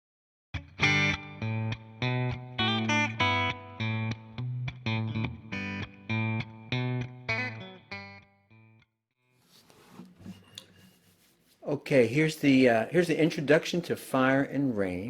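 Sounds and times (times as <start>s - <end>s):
guitar picking melody: 0.6s - 8.8s.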